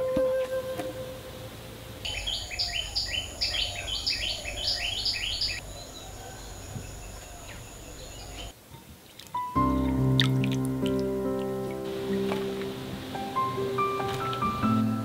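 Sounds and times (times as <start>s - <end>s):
insect whine: 0.0s - 8.5s
faint outdoor background noise: 0.0s - 15.0s
bird chirping: 2.0s - 8.6s.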